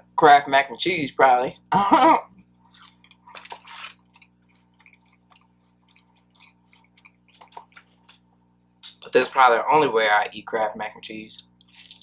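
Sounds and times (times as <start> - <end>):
steady low hum: 0.0 - 12.0
wet chewing: 2.4 - 9.0, 11.4 - 12.0.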